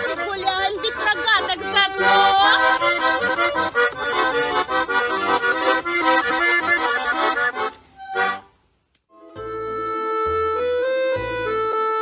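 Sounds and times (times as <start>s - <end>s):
accordion playing a quick tune: 0.0s - 8.5s, 9.1s - 12.0s.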